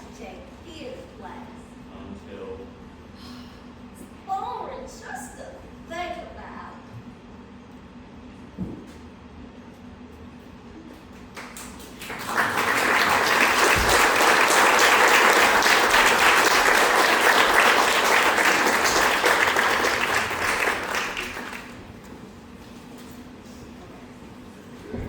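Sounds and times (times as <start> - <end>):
audience applauding: 11.4 - 22.0.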